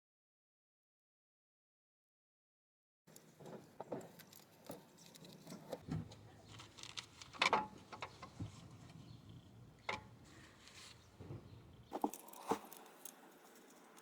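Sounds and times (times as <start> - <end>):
light metallic clicks and clinks: 3.1 - 5.8.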